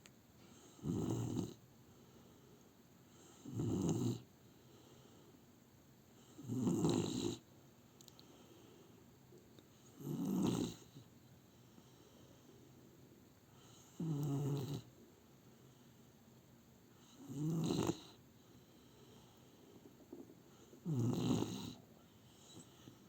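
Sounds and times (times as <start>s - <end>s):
puppy snoring: 0.5s - 1.6s, 3.1s - 4.3s, 6.2s - 7.4s, 9.8s - 11.1s, 13.6s - 14.9s, 17.0s - 23.0s.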